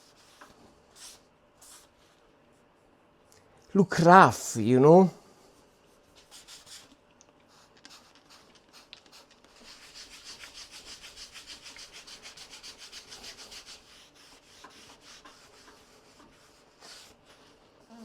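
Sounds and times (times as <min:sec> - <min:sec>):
hand rubbing on a surface: 0:07.5 - 0:17.8.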